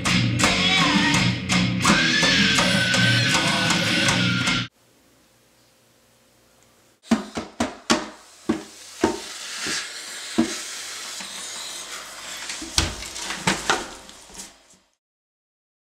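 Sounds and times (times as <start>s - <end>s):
steady hiss: 8.1s - 15.0s.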